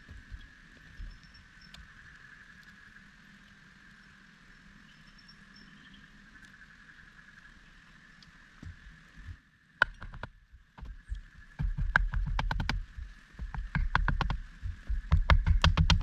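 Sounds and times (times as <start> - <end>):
insects droning: 0.0 - 16.0
sharp knocks: 8.6 - 16.0.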